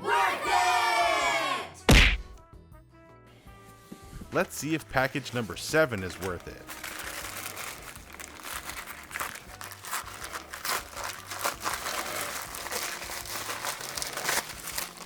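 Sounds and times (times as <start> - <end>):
packaging crinkling: 5.1 - 15.0.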